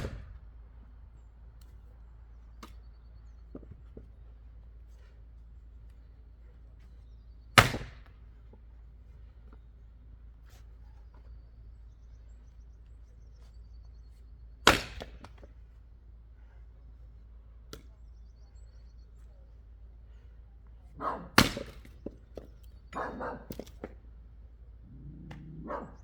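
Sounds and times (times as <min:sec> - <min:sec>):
axe chopping wood: 0:00.0 - 0:00.4, 0:07.6 - 0:08.6, 0:14.6 - 0:15.5, 0:21.4 - 0:24.0.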